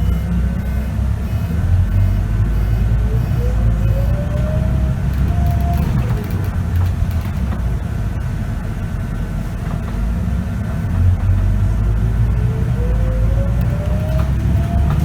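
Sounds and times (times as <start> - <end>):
gearbox whine: 0.0 - 7.7, 13.0 - 15.0
bus diesel engine rumbling: 0.0 - 15.0.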